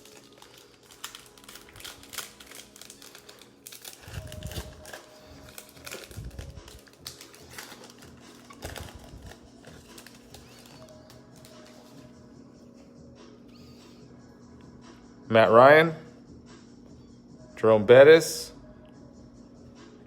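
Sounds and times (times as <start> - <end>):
wrappers crinkling and tearing: 0.0 - 12.1.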